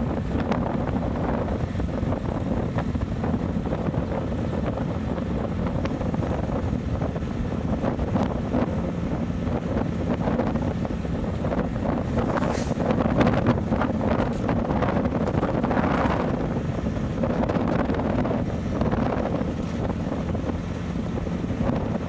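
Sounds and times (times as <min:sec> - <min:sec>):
road noise: 0:00.0 - 0:22.0
wind buffeting microphone: 0:00.0 - 0:22.0.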